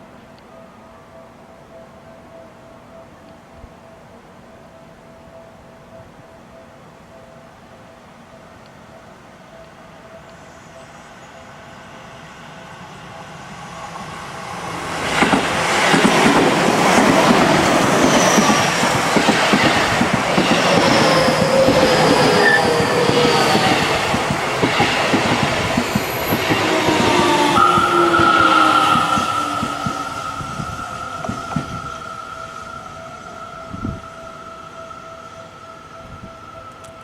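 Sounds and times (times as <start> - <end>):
train rumble: 12.2 - 37.0
high-pitched brake squeal: 20.4 - 24.1, 24.8 - 36.8.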